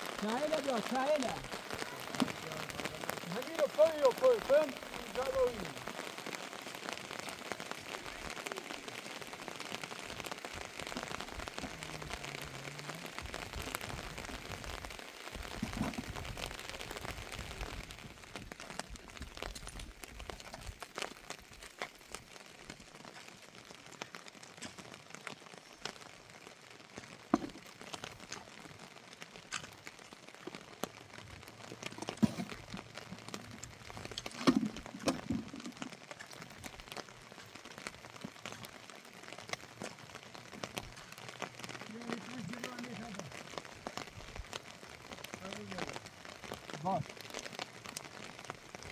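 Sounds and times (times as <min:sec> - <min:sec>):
rain hissing: 0:00.0 - 0:48.9.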